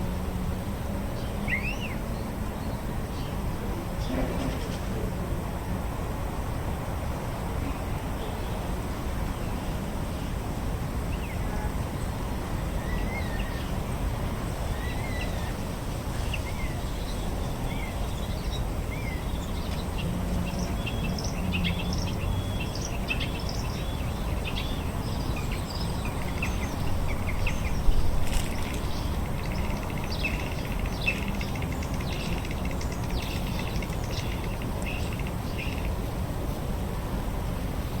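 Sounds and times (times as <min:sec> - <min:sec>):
birds calling and chirping: 0:16.2 - 0:36.0.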